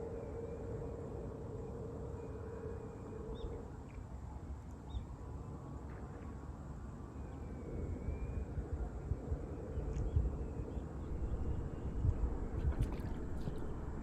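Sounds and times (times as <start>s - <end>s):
faint steady hum: 0.0s - 14.0s
wind rumble on microphone: 2.8s - 14.0s.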